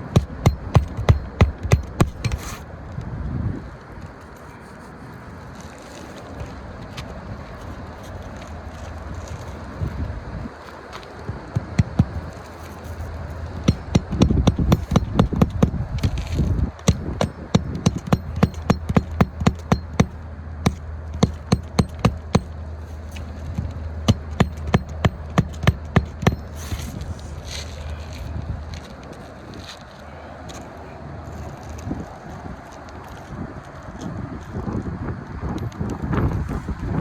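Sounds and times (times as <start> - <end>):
hammer striking nails: 0.0 - 2.6, 11.6 - 27.0
steady low hum: 0.0 - 31.3.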